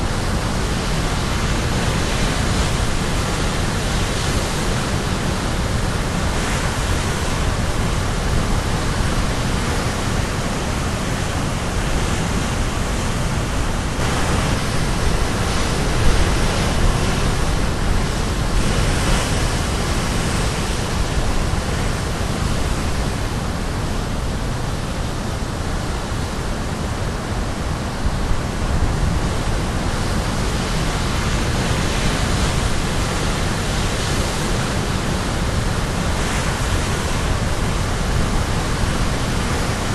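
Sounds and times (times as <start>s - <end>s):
surf breaking on shore: 0.0s - 25.7s, 27.3s - 39.9s
wind on microphone: 0.0s - 39.9s.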